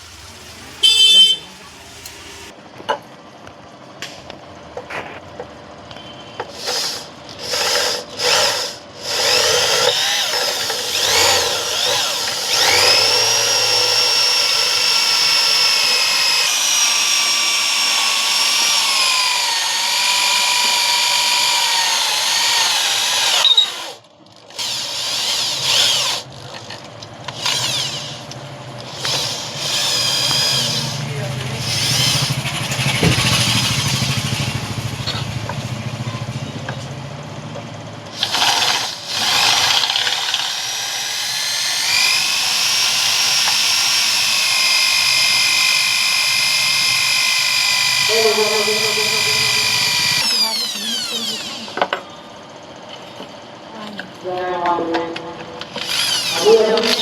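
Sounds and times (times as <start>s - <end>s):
electric power tool whining: 6.4s - 26.3s, 27.3s - 35.8s, 38.1s - 52.0s, 55.6s - 57.0s.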